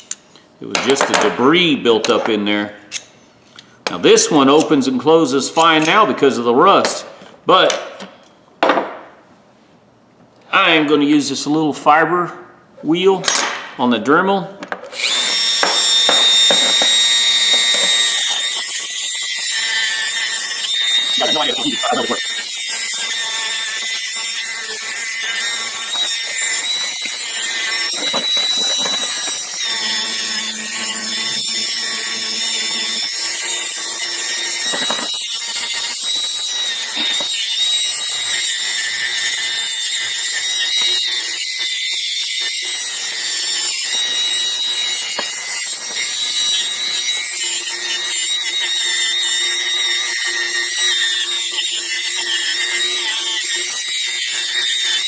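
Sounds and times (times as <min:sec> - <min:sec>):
rotary tool grinding metal: 0:14.9 - 0:55.0.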